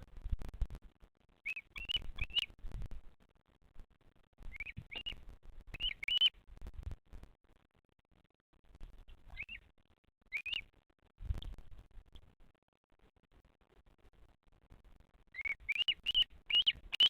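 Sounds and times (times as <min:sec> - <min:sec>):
bird chick chirping: 0:01.4 - 0:02.5, 0:04.5 - 0:06.3, 0:09.3 - 0:09.7, 0:10.3 - 0:10.7, 0:15.4 - 0:17.0.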